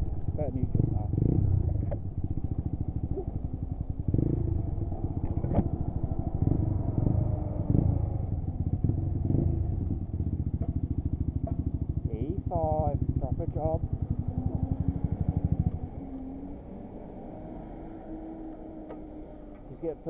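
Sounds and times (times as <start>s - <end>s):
motorcycle engine putter: 10.3s - 15.9s, 18.7s - 19.8s.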